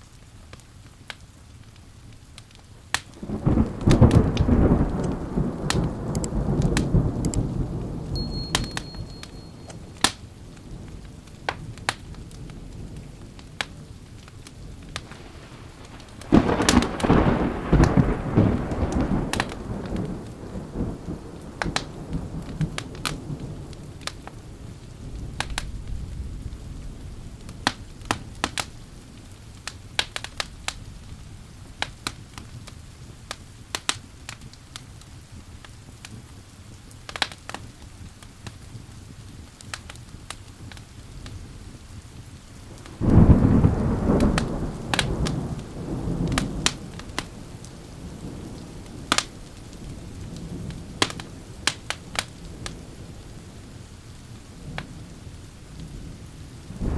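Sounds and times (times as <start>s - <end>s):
fireplace crackling: 0.0s - 56.9s
steady rain: 0.0s - 56.9s
thunder rumbling: 3.1s - 31.5s, 41.2s - 56.9s.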